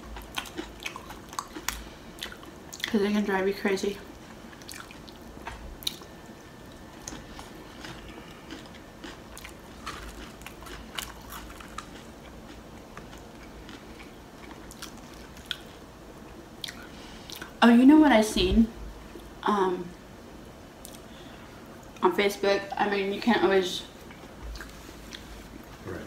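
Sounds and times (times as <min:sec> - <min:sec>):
tortilla chips crunching: 0:00.1 - 0:02.9, 0:07.0 - 0:15.7
quiet chewing: 0:00.1 - 0:03.0, 0:04.0 - 0:15.8, 0:16.6 - 0:17.5, 0:20.8 - 0:21.1, 0:24.0 - 0:25.8.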